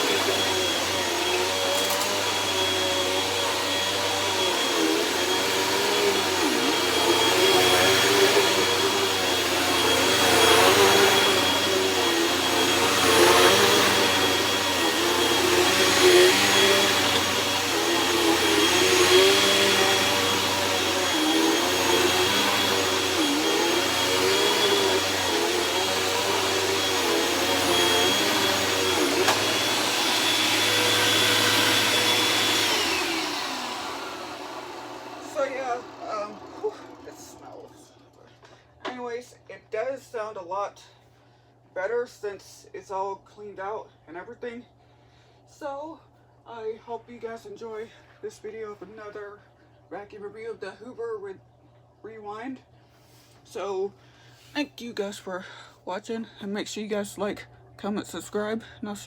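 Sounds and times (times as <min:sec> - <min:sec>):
vacuum cleaner motor whine: 0:00.0 - 0:38.2.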